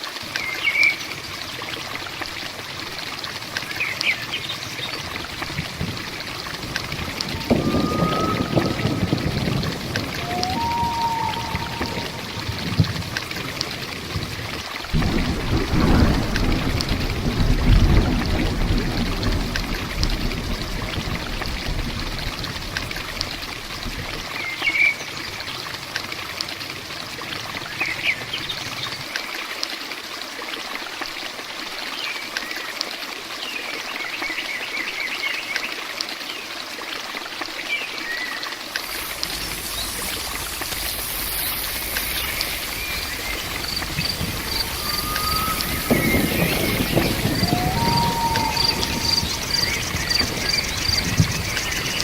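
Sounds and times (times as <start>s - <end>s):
heavy rain: 0.0s - 32.6s, 33.5s - 52.0s
water trickling: 0.0s - 33.8s, 35.6s - 52.0s
low rumble: 5.6s - 14.4s, 38.8s - 52.0s
birds chirping: 7.0s - 13.0s, 38.8s - 52.0s
high insect-like hiss: 38.8s - 52.0s.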